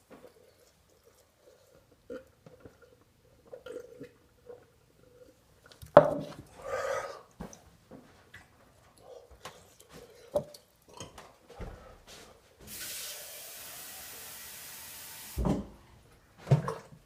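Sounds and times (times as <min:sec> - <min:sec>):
person chewing and swallowing: 0:00.0 - 0:05.4.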